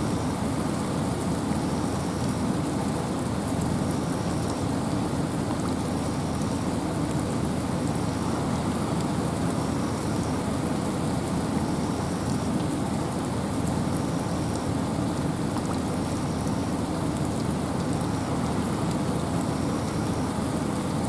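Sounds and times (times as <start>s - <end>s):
wind and rain rushing: 0.0s - 21.0s
raindrop ticks: 13.6s - 20.3s.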